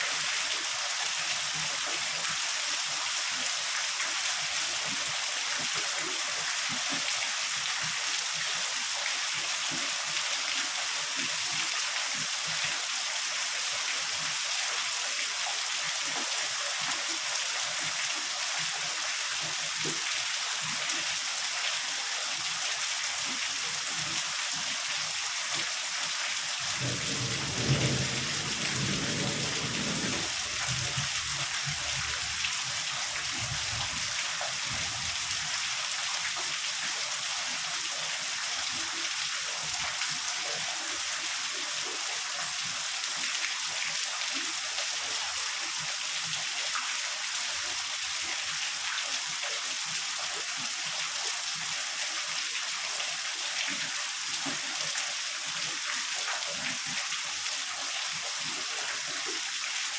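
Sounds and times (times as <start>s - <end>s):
heavy rain falling: 26.6s - 35.4s
thunder rumbling: 26.8s - 30.3s.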